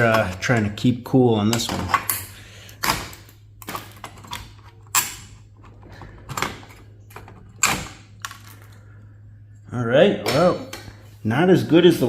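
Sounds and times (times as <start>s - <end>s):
metal parts clunking and scraping: 0.0s - 0.8s, 1.5s - 8.8s
low steady hum: 0.0s - 12.0s.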